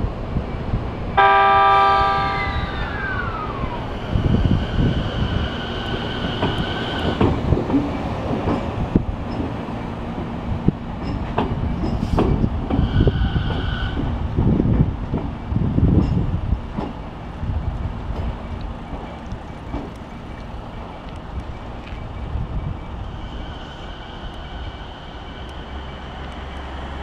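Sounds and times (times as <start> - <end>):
electric train whine: 0.1 - 27.0
train horn blast: 1.2 - 2.8
wheels clacking over rail joints: 2.9 - 22.2.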